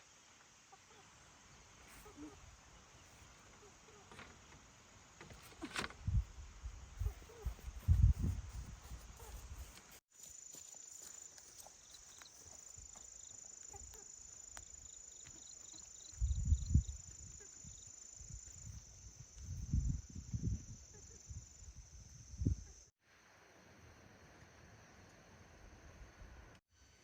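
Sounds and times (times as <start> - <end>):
rustles: 0.7 - 19.8.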